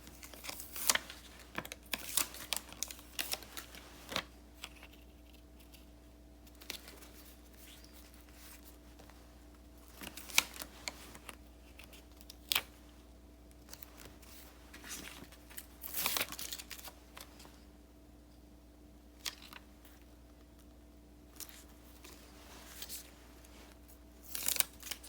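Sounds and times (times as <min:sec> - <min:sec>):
paper rustling: 0:00.0 - 0:05.9, 0:06.5 - 0:12.8, 0:13.6 - 0:17.6, 0:21.4 - 0:25.0
faint steady hum: 0:00.0 - 0:25.0.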